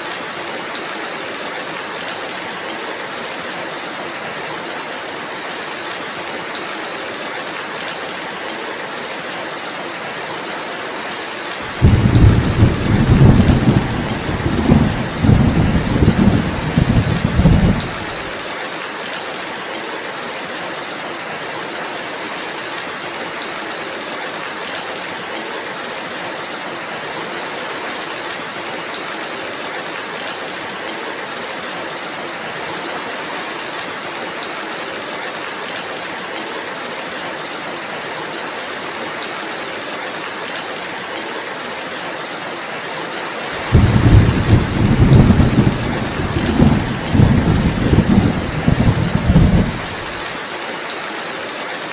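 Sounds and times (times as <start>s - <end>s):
steady rain hiss: 0.0s - 51.9s
low rumble of thunder: 11.7s - 18.3s, 43.6s - 50.2s.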